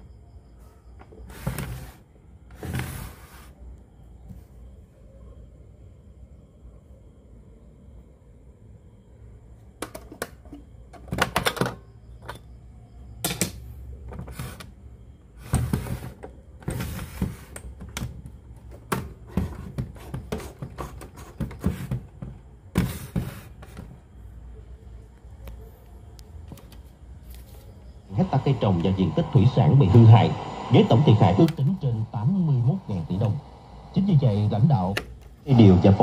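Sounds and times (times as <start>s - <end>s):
low steady hum: 23.8s - 36.0s.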